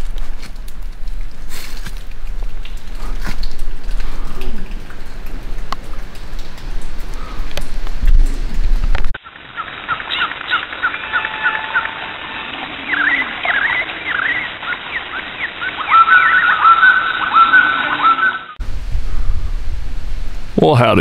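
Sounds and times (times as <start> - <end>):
birds chirping and calling: 9.2 - 18.6
repeated whistled notes: 10.2 - 18.6.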